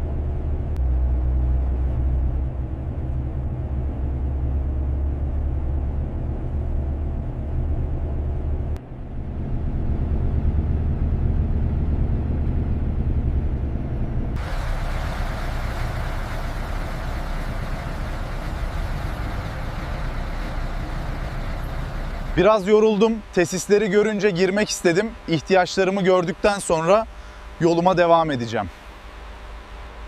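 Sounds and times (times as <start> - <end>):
engine and road rumble: 0.0 - 30.0
hissing road and traffic noise: 14.4 - 30.0.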